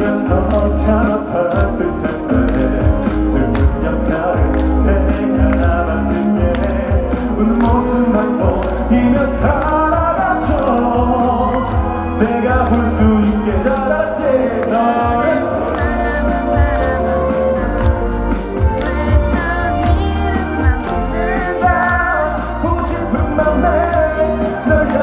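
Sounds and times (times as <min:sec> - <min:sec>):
live band playing pop ballad: 0:00.0 - 0:25.0
person singing: 0:00.0 - 0:25.0.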